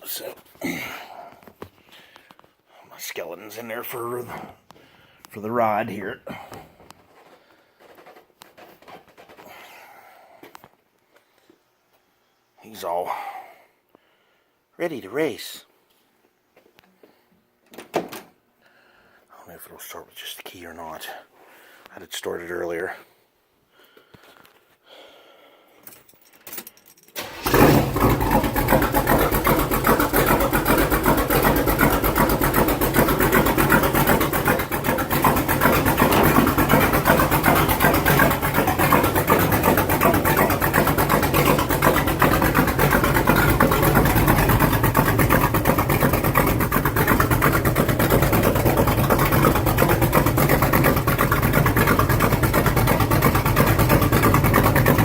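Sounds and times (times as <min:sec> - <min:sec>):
car engine cranking: 0:27.2 - 0:55.0
loud engine idling: 0:27.2 - 0:55.0.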